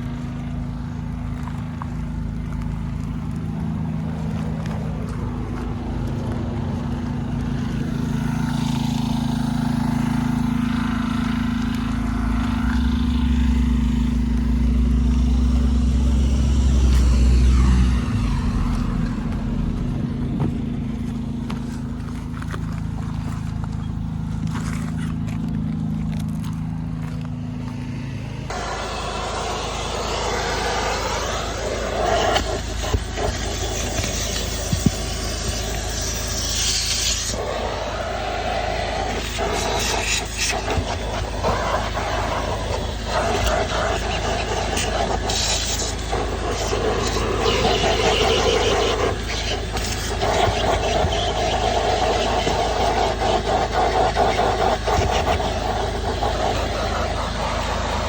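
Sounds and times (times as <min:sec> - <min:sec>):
deep low rumble: 0:00.0 - 0:32.2
small engine running: 0:00.0 - 0:58.0.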